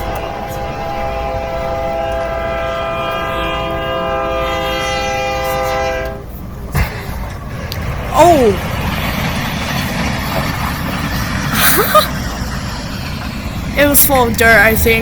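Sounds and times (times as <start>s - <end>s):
locomotive air horn chord: 0.0s - 6.3s
train rumbling: 0.0s - 15.0s.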